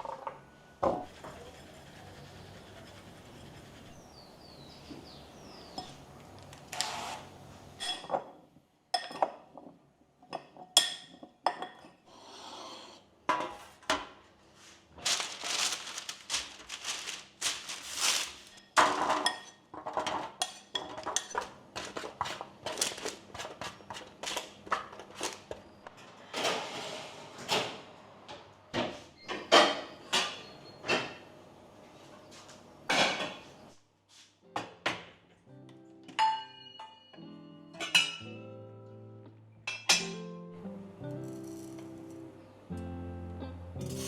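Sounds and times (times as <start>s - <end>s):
dishes and utensils clinking: 7.8s - 8.3s, 8.9s - 12.0s, 18.5s - 25.0s, 32.9s - 33.6s, 36.1s - 38.4s, 39.7s - 40.3s, 43.8s - 44.0s.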